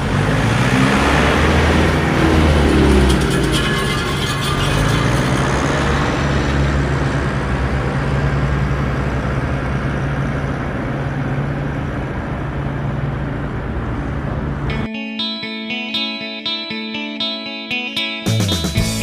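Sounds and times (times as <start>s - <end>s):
engine-like rumble: 0.0s - 14.9s.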